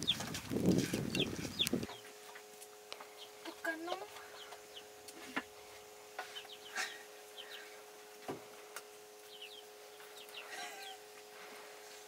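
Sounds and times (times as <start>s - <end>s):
small birds chirping: 0.0s - 2.2s, 2.9s - 8.0s, 9.2s - 11.3s
steady low hum: 0.0s - 12.0s.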